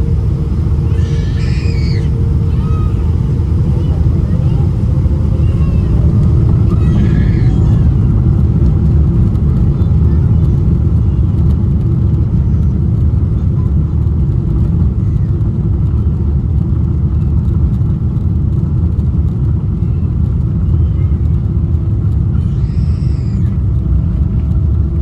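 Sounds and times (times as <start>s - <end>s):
rushing air: 0.0s - 10.9s
jet engines low rumble in cabin: 0.0s - 25.0s.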